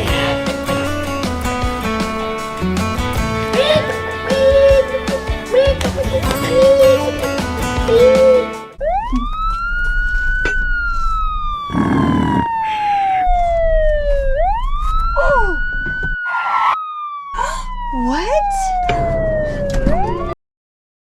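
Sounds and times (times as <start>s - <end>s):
background music: 0.0s - 8.8s, 18.9s - 20.4s
police siren wailing: 7.9s - 20.4s.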